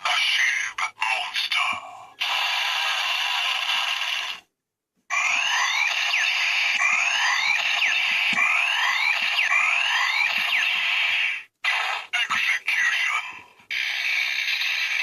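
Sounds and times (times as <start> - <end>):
looping electronic swoops: 5.1 - 12.2
dense noisy electronic burst: 5.1 - 12.3.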